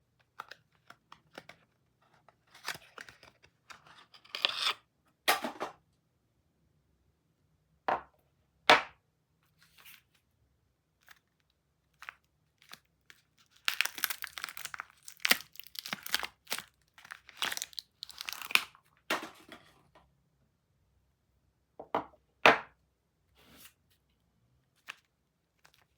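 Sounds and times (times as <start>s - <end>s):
packaging tearing and crinkling: 12.0s - 18.8s.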